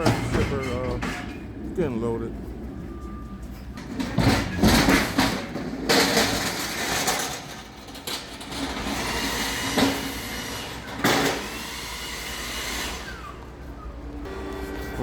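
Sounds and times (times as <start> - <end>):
freight rumbling and rattling: 0.0 - 11.6.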